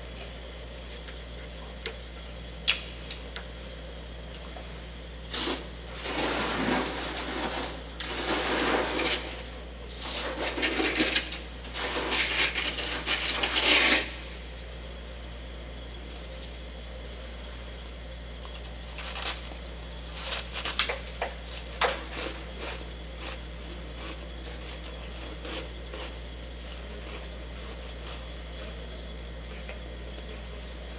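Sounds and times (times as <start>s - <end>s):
chewing frost crunching: 18.4s - 30.6s.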